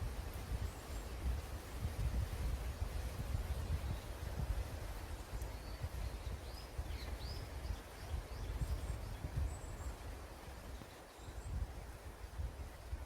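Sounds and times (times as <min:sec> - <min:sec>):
wind buffeting microphone: 0:00.0 - 0:13.0
birds chirping: 0:05.3 - 0:11.7.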